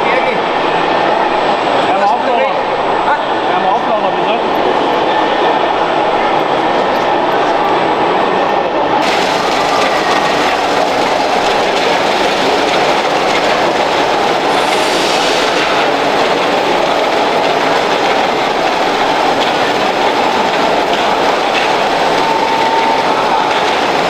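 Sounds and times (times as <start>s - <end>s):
electric motors whirring and clattering: 9.0s - 24.0s.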